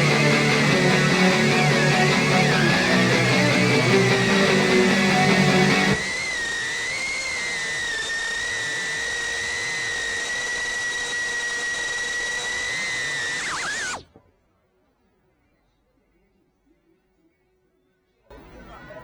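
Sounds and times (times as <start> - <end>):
music: 0.0 - 6.0
drone motors whining: 0.0 - 14.2.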